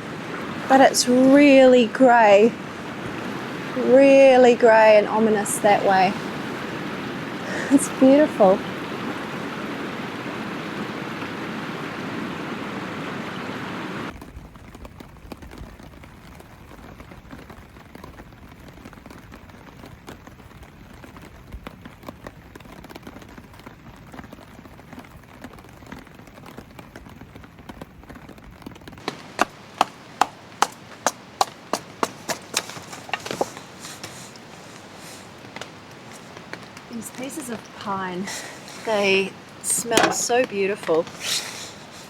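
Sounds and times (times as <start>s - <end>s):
raindrops ticking: 0.0s - 11.8s, 14.1s - 42.0s
river water rushing: 0.0s - 14.1s, 29.0s - 42.0s
rain falling: 0.0s - 42.0s
sharp knocks: 29.0s - 33.6s, 39.8s - 40.4s.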